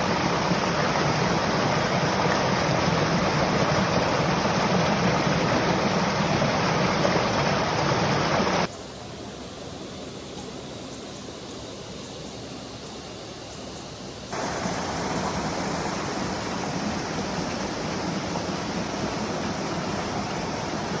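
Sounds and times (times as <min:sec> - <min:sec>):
water rushing over rocks: 0:00.0 - 0:08.7, 0:14.4 - 0:21.0.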